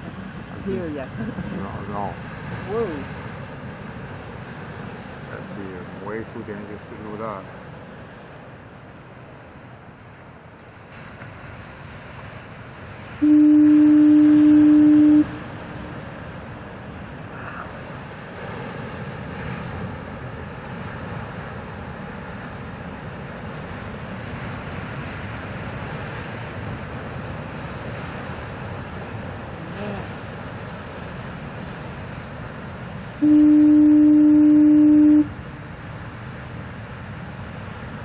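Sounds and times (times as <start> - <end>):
foghorn blast: 13.2 - 15.6, 33.2 - 35.4.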